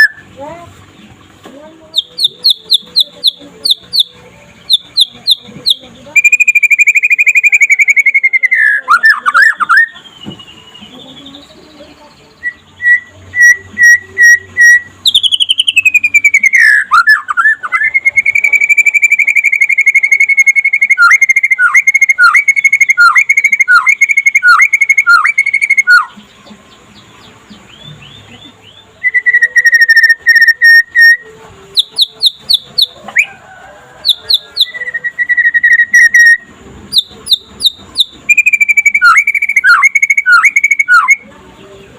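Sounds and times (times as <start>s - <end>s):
bird singing whistled phrases: 0.0s - 0.3s, 1.9s - 4.1s, 4.7s - 11.5s, 12.3s - 26.2s, 27.7s - 33.0s, 34.0s - 41.2s.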